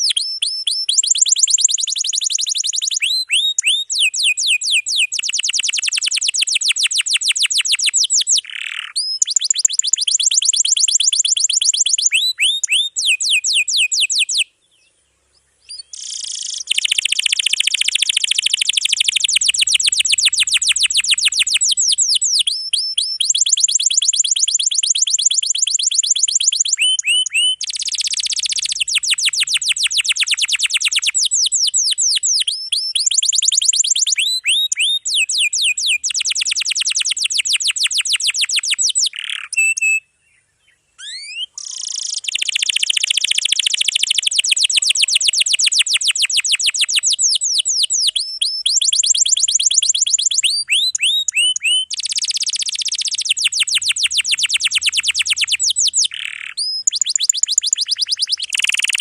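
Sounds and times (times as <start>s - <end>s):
canary trilling: 0.0s - 14.4s, 15.7s - 40.0s, 41.0s - 59.0s
canary rising whistles: 15.7s - 40.0s, 41.0s - 59.0s.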